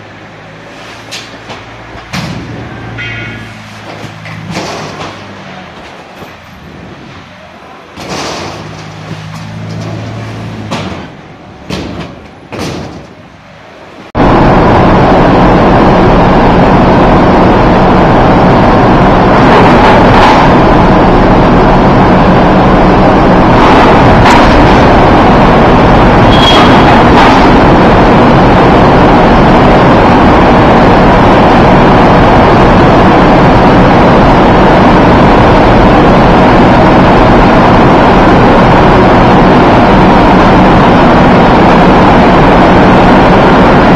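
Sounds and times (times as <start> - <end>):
loud mechanical roar: 0.0 - 43.9
vehicle engine humming: 0.0 - 43.9
sharp knocks: 1.4 - 6.0, 10.6 - 13.2.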